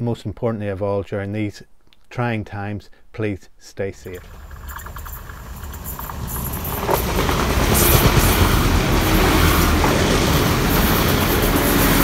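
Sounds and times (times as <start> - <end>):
train wheel noise: 4.1 - 12.0
train passing close by: 4.2 - 12.0.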